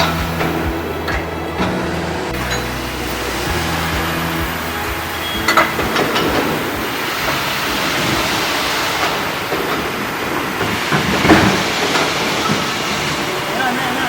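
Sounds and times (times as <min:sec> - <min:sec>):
low hum: 0:00.0 - 0:09.7
factory machinery rumble: 0:00.0 - 0:14.0.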